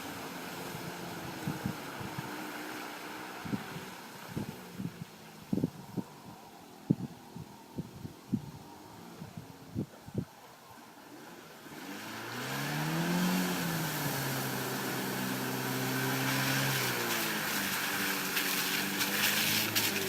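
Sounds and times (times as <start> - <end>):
off-road vehicle engine revving: 0.0 - 4.9, 11.0 - 20.0
sharp crackles: 16.3 - 20.0.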